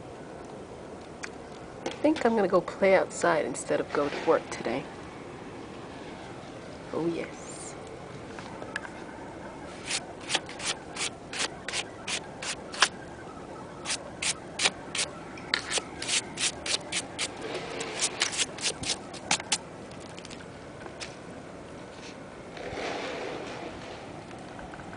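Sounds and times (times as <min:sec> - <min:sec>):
footsteps crunching in snow: 0:09.7 - 0:12.9.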